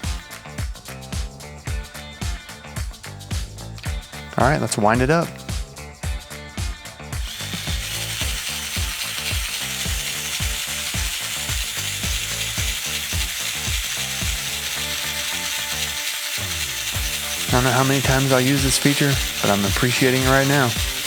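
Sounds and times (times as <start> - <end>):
power drill running: 7.2 - 21.0.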